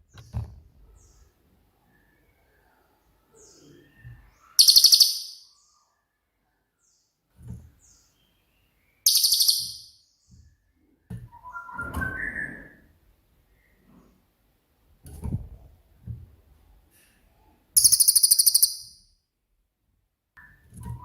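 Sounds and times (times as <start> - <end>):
bird rattling song bursts: 4.6 - 5.4, 9.1 - 9.9, 17.8 - 18.9
bird whistled call: 9.1 - 9.9.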